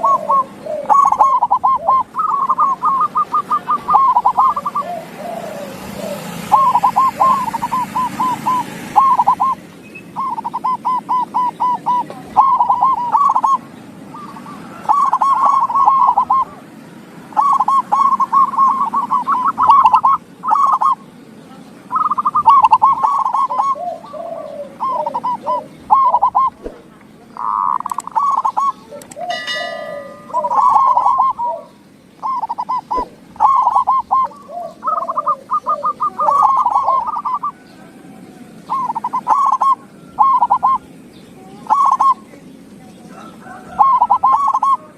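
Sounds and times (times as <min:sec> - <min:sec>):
lower-pitched dove answering: 0:00.0 - 0:09.6, 0:10.2 - 0:16.6, 0:27.4 - 0:37.7, 0:38.6 - 0:40.9, 0:41.6 - 0:42.3, 0:43.2 - 0:44.9
doves cooing: 0:00.0 - 0:44.9
harsh bird call: 0:00.0 - 0:44.9.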